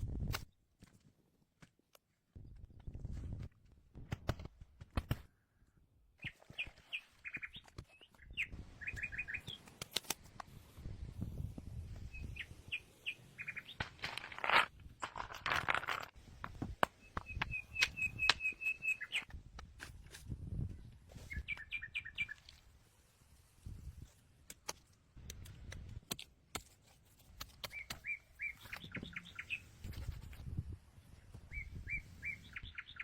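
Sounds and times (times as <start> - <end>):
bird chirping: 6.2 - 9.6, 12.1 - 14.0, 17.0 - 19.3, 21.2 - 22.5, 27.6 - 30.1, 31.5 - 33.0.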